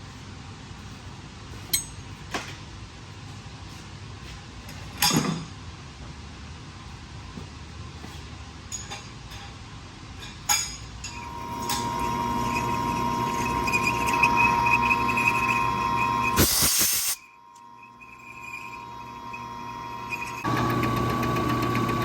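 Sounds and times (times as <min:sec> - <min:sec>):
metal parts and tools clinking: 0:08.7 - 0:09.6, 0:10.2 - 0:11.9
machine whine: 0:11.1 - 0:22.0.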